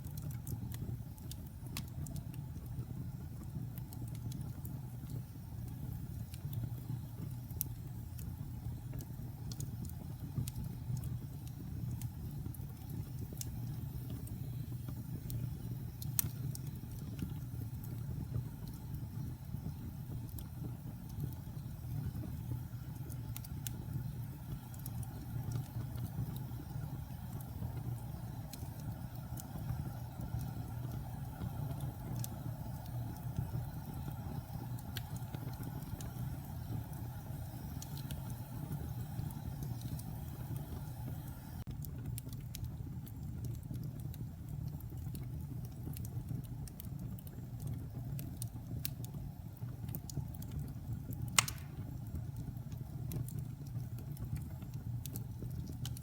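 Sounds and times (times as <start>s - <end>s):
burning wood crackling: 0.0s - 56.0s
low rumble of flames: 0.0s - 56.0s
loud wood pop: 51.4s - 51.8s.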